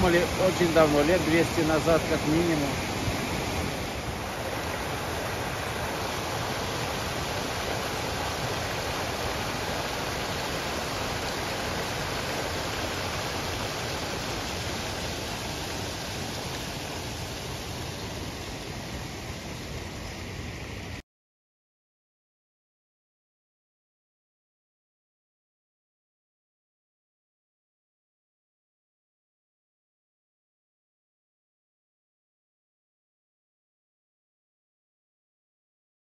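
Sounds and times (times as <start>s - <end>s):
water rushing over waterfall: 0.0s - 21.0s.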